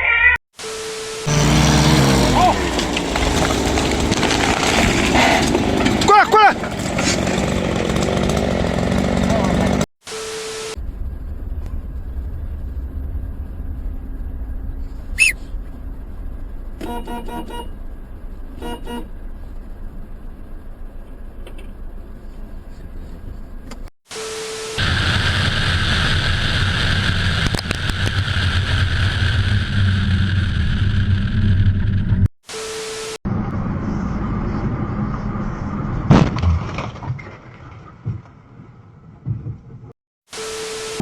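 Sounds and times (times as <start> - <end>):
low vehicle rumble: 1.2 - 9.9, 10.7 - 23.9, 24.8 - 32.3, 33.3 - 36.8
brief beep: 16.8 - 17.8
car horn toots: 16.8 - 17.8, 18.6 - 19.2.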